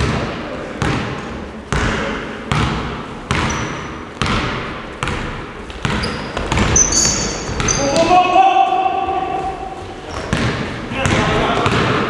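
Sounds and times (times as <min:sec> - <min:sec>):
basketball dribbling on gym floor: 0:01.7 - 0:08.2, 0:09.4 - 0:12.0
short high squeaks: 0:06.0 - 0:08.0.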